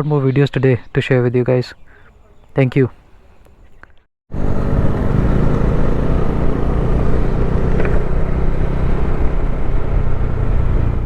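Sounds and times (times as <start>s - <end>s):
motorcycle engine running: 4.3s - 11.0s.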